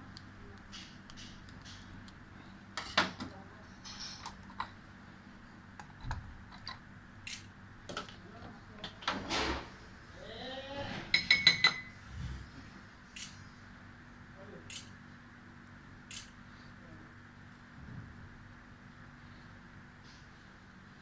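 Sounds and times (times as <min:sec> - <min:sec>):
metal utensils clinking on dishes: 0:02.8 - 0:04.8, 0:11.0 - 0:11.9.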